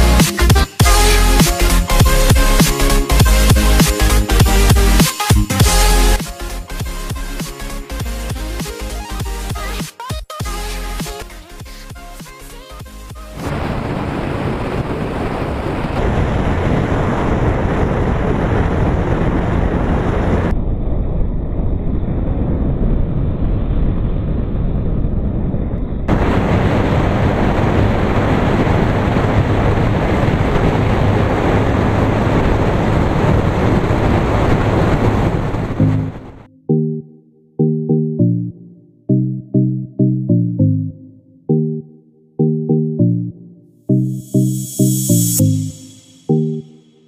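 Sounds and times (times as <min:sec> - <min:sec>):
wind buffeting microphone: 0:13.5 - 0:36.4.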